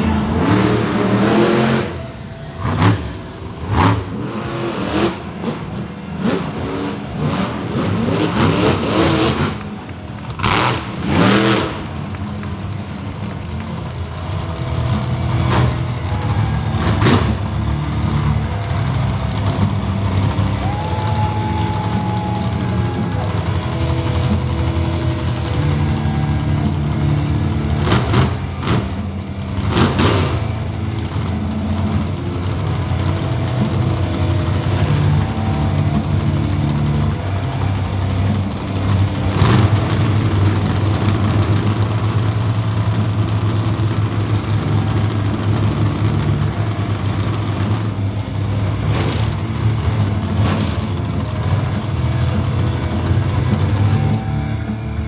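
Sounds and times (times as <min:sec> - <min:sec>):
monster truck engines idling: 0:00.0 - 0:55.0.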